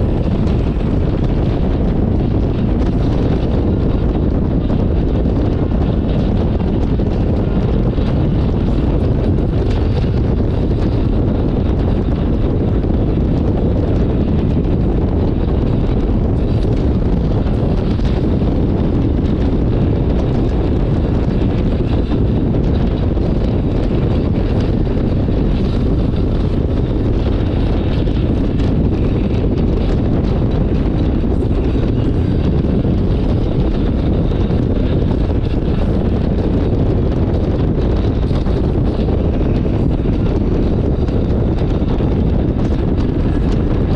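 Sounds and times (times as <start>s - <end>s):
road and engine noise: 0.0s - 43.9s
wind rushing over microphone: 0.0s - 43.9s.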